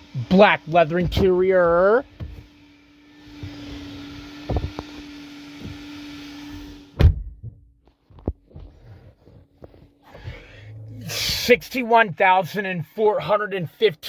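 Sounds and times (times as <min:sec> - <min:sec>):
car door thunk: 0:04.4 - 0:04.9, 0:07.0 - 0:07.7.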